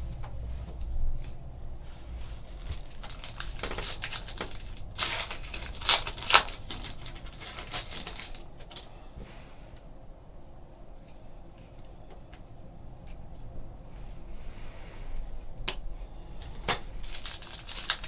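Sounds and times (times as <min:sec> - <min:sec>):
foil pack crinkling and tearing: 0:02.4 - 0:08.9, 0:16.5 - 0:18.0.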